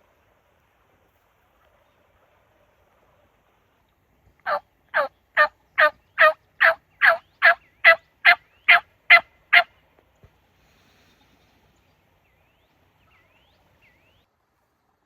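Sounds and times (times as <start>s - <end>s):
turkey yelps: 4.5s - 9.7s.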